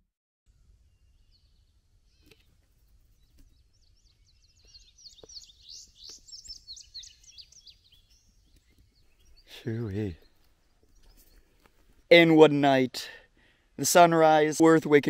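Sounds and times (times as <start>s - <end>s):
birds chirping and singing: 0.5s - 12.3s.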